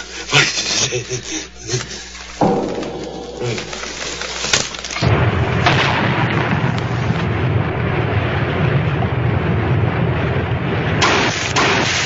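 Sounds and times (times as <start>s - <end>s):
sharp bright burst: 2.4s - 7.3s, 11.0s - 12.0s.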